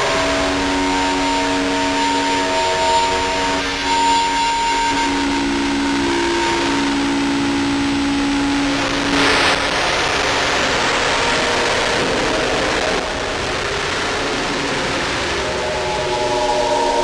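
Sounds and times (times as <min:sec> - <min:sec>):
droning synth tones: 0:00.0 - 0:17.0
dense wash of noise: 0:05.7 - 0:17.0
thin rising tone: 0:15.4 - 0:17.0.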